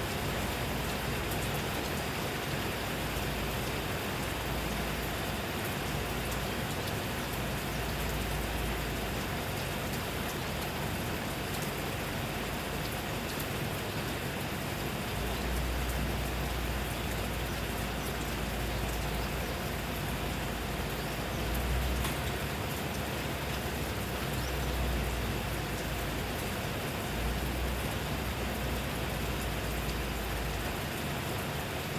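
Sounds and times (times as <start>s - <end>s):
steady rain falling: 0.0s - 31.9s.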